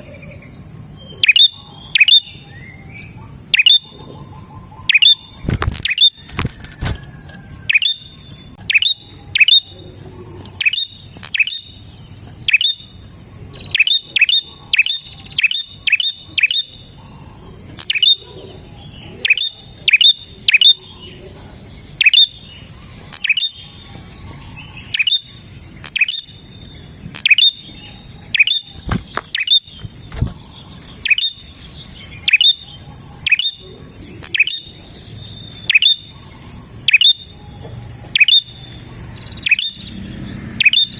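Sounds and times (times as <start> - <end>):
bird chirping: 0.0 - 6.4, 7.1 - 40.9.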